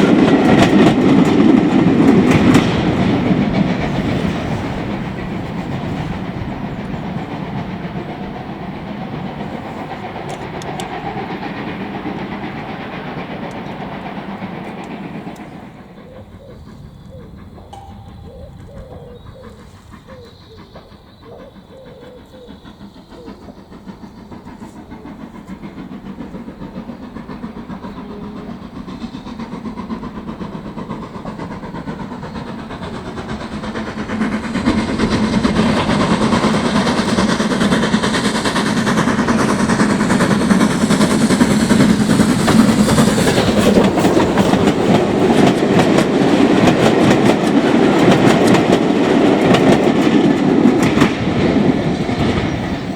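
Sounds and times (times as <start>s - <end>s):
steam train running: 0.0s - 52.9s.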